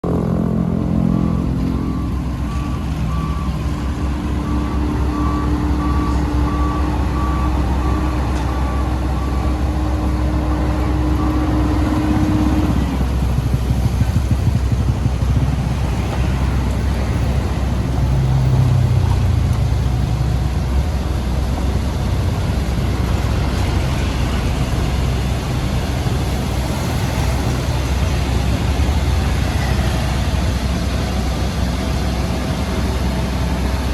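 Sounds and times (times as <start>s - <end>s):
heavy diesel machinery running: 0.0s - 33.9s
reversing alarm beeping: 0.8s - 13.5s.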